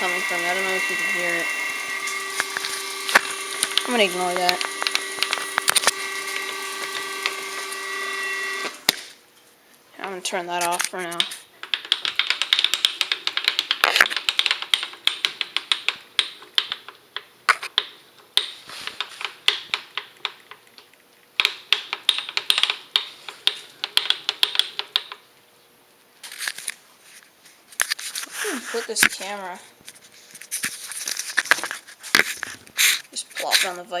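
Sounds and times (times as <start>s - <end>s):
milling machine clicking: 0.0s - 9.0s.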